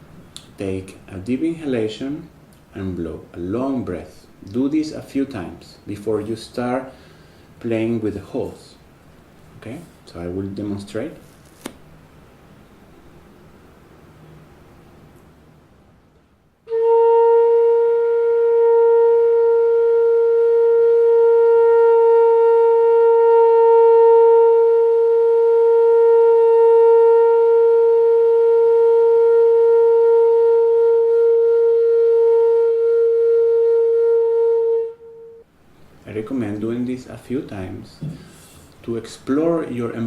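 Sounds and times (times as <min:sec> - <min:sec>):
bamboo flute long held note: 0:16.7 - 0:35.5.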